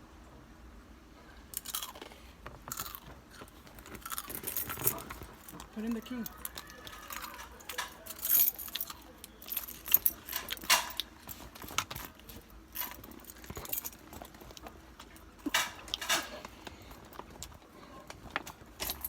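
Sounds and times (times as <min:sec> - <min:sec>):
keys jangling: 0:04.0 - 0:05.6, 0:06.3 - 0:12.2, 0:12.8 - 0:14.6, 0:15.2 - 0:16.5, 0:18.8 - 0:19.0.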